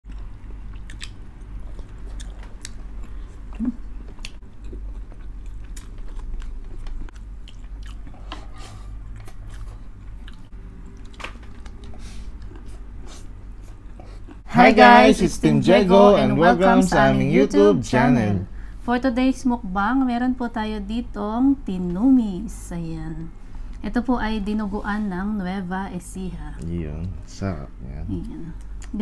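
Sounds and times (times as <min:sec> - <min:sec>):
people chewing and biting: 0:00.1 - 0:14.5.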